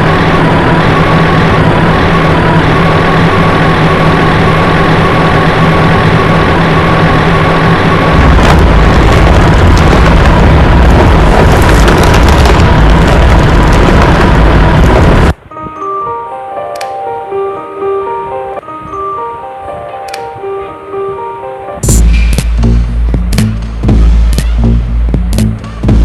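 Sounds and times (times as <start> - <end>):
heavy machinery engine rumbling: 0.0 - 15.5, 21.8 - 26.0.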